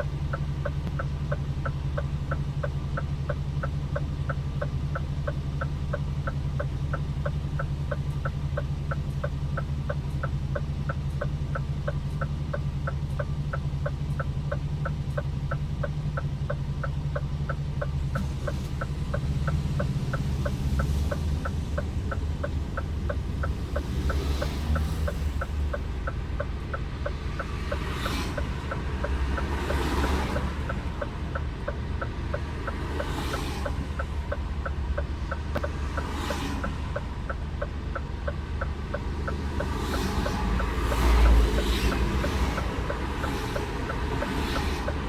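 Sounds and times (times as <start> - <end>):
diesel engine drone: 0.0 - 45.0
indicator ticking: 0.0 - 45.0
passing traffic whoosh: 18.0 - 45.0.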